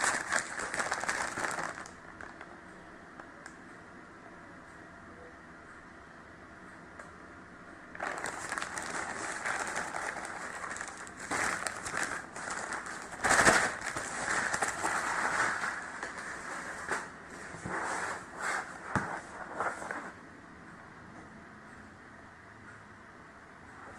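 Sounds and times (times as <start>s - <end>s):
packaging crinkling: 0.0s - 2.5s, 8.0s - 17.0s.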